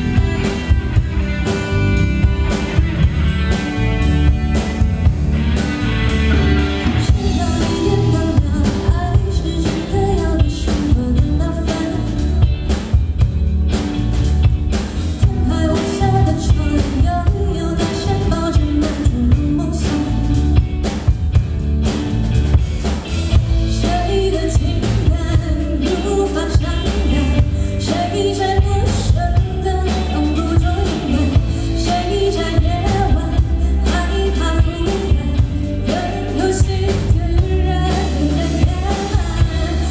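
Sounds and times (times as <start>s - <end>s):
drum kit beat: 0.0s - 39.9s
rock song with singing: 0.0s - 39.9s.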